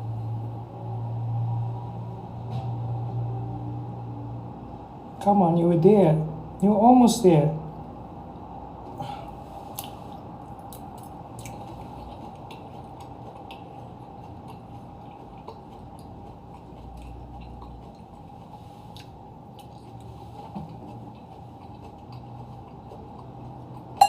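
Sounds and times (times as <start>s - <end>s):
low room hum: 0.0s - 24.0s
soft wet chewing: 8.4s - 24.0s.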